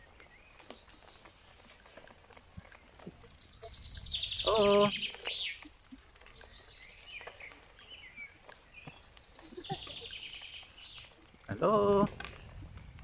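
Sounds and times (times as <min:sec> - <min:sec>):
songbird trilling: 0:03.4 - 0:05.7.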